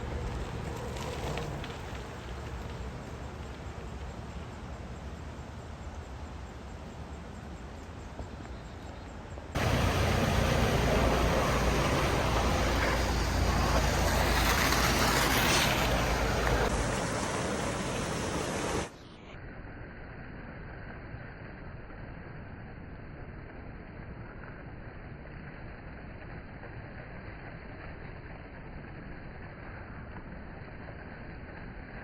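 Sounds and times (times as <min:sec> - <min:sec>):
air rushing over microphone: 0:09.6 - 0:19.2.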